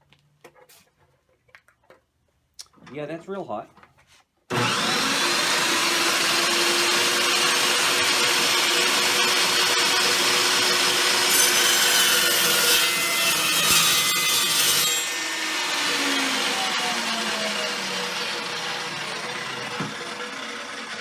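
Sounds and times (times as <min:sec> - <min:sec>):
chop saw cutting steel: 0:04.5 - 0:21.0.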